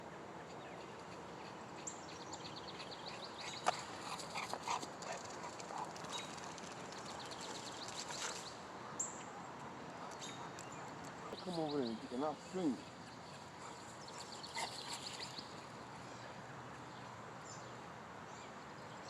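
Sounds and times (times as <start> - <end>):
dogs playing: 0.4 - 9.0, 9.6 - 16.1.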